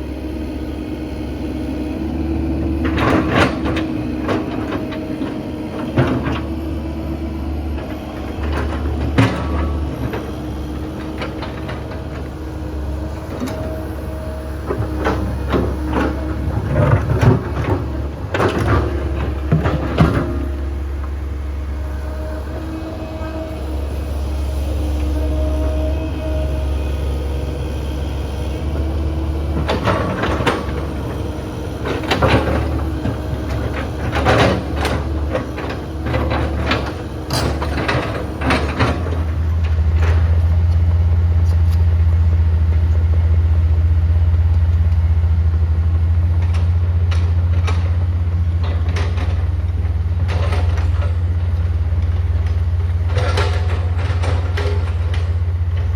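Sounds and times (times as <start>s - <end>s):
diesel machinery droning: 0.0s - 55.9s.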